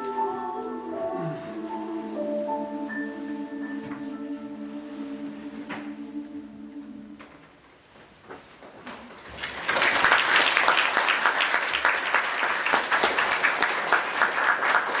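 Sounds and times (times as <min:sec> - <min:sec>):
audience applause: 0:09.0 - 0:15.0.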